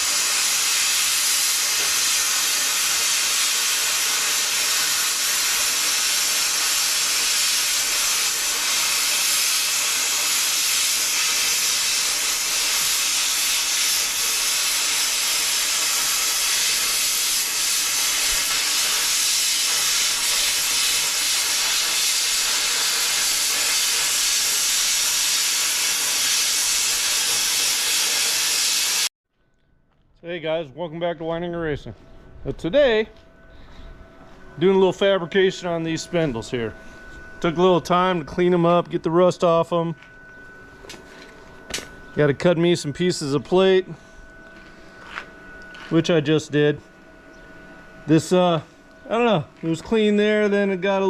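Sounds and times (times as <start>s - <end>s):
compressed air tool hissing: 0.0s - 29.1s.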